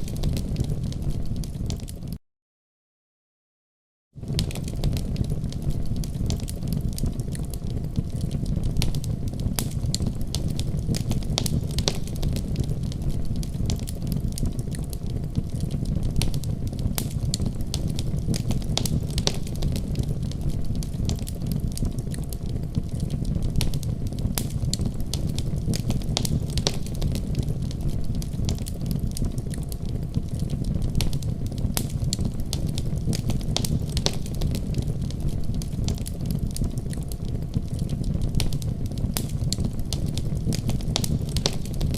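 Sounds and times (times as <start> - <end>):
wood fire crackling: 0.0 - 2.2, 4.2 - 41.9.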